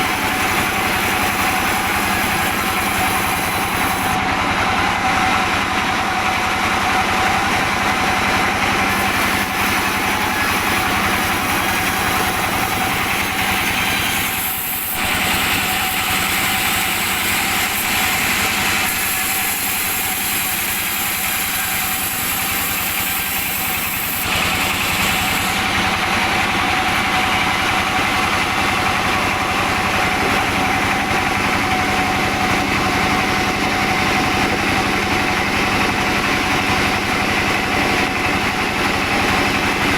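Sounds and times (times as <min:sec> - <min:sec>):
saw cutting wood hiss: 0:00.0 - 0:04.2, 0:08.8 - 0:32.5
engine hum: 0:23.7 - 0:39.9.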